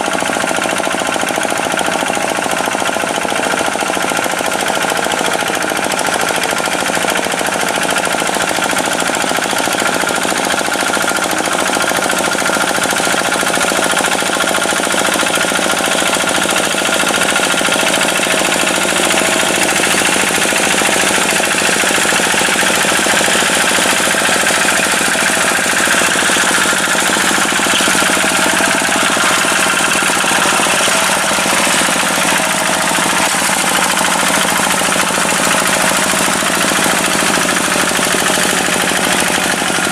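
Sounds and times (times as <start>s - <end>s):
tractor diesel engine clattering: 0.0s - 39.9s.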